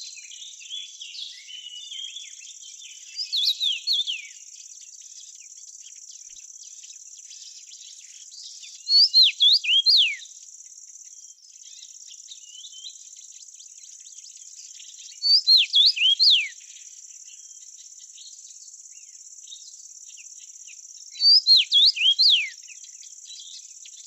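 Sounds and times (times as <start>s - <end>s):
songbird whistling: 0.0s - 4.4s, 8.6s - 10.2s, 15.1s - 16.6s, 21.2s - 22.6s
insect chorus trilling: 0.0s - 24.0s.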